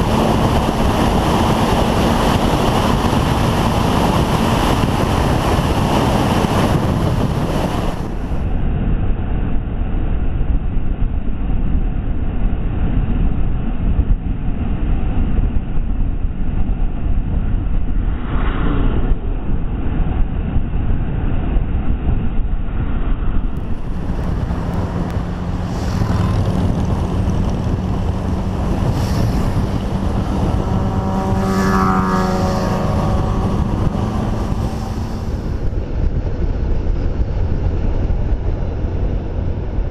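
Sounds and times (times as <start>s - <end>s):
motorcycle engine: 0.0s - 8.4s, 23.4s - 39.9s
wind on microphone: 0.0s - 39.9s.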